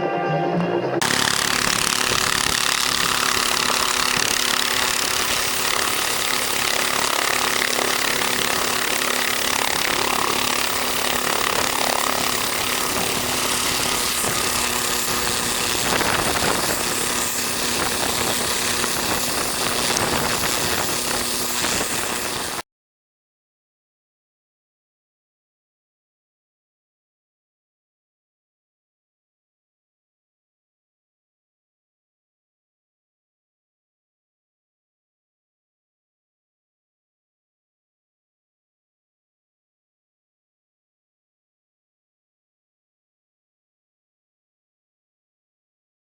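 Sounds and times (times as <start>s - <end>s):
helicopter turbine and rotors: 1.0s - 22.6s.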